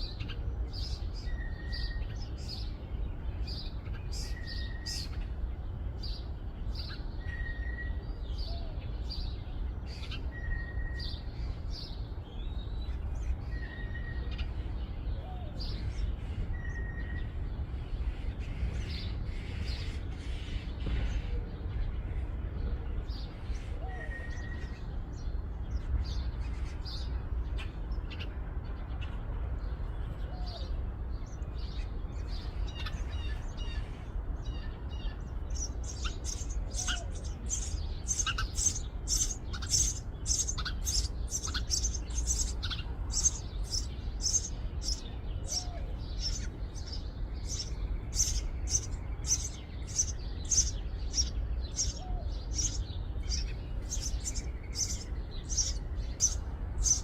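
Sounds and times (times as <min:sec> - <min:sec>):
nestlings chirping: 0:35.0 - 0:57.0.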